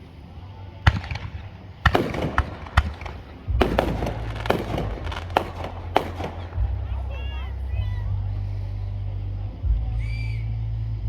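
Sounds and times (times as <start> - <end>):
deep rumble: 0.0 - 11.0
fireworks bangs: 0.9 - 7.9.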